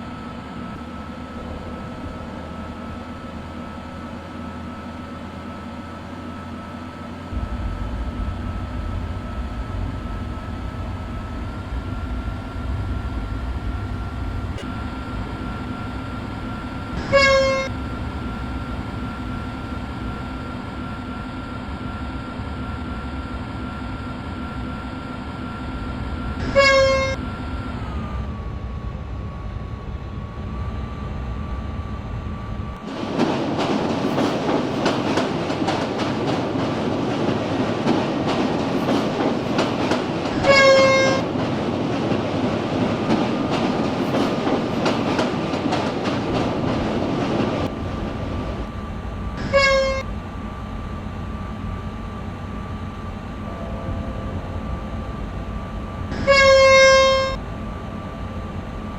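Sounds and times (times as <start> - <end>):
train horn toots: 16.8 - 17.9, 26.3 - 27.4, 40.2 - 41.5, 49.4 - 50.1, 53.4 - 57.4.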